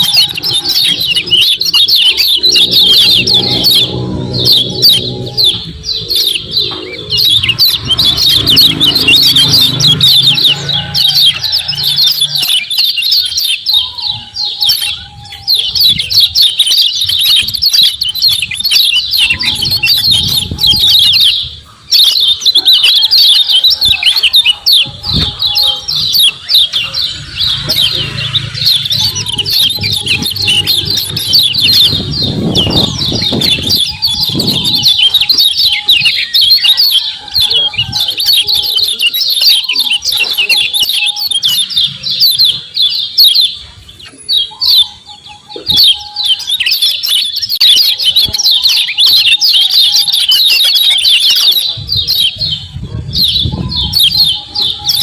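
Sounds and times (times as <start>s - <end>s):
bird chattering chirps: 0.0s - 55.0s.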